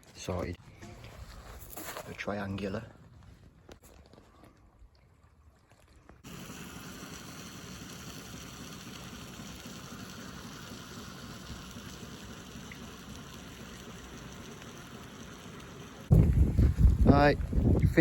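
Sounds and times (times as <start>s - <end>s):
choppy lake water: 3.8s - 18.0s
wind on microphone: 16.1s - 18.0s.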